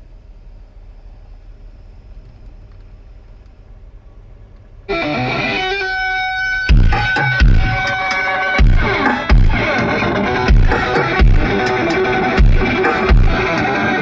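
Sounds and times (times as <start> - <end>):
electric guitar with deep bass hits: 4.9 - 14.0.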